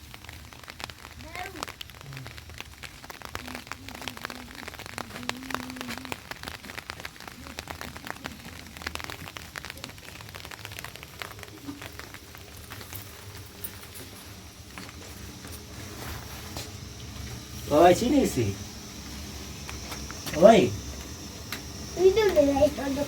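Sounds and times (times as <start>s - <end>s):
rain on a hard surface: 0.0s - 23.0s
faint voice: 3.3s - 10.3s.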